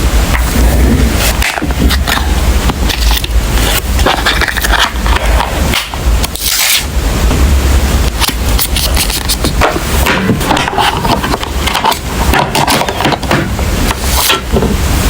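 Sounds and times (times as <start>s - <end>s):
low rumble: 0.0s - 8.6s.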